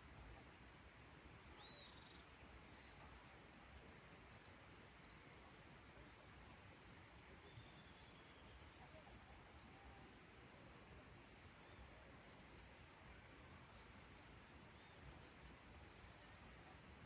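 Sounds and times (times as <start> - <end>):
crickets chirping: 0.0 - 17.0
thin bird calls: 1.6 - 2.2.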